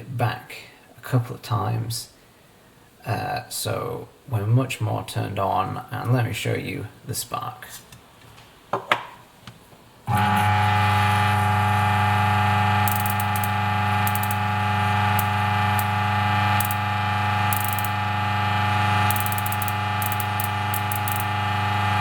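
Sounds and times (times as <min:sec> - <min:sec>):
coffee grinder buzzing hum: 0:10.1 - 0:22.0
electric spark crackling: 0:12.8 - 0:18.1, 0:18.9 - 0:21.8.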